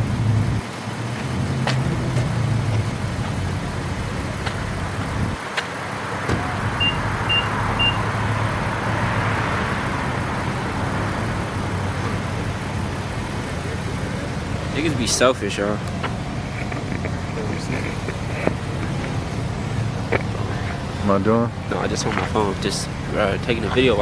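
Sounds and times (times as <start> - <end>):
car engines running: 0.0 - 24.0
short high beeps: 6.8 - 8.1.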